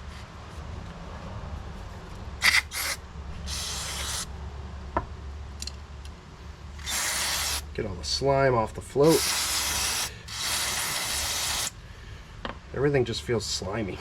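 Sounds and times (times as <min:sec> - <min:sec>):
spray can hissing: 0:02.4 - 0:04.3, 0:06.8 - 0:07.6, 0:09.0 - 0:11.7.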